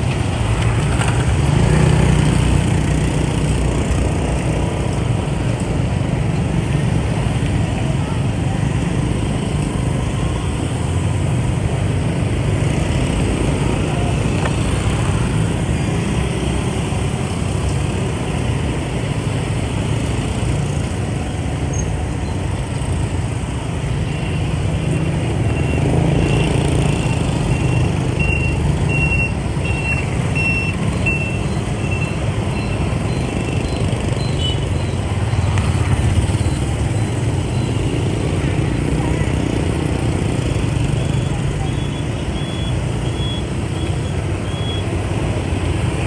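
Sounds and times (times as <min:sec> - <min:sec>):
motorbike traffic rumble: 0:00.0 - 0:46.0
high electronic beep: 0:27.3 - 0:38.1.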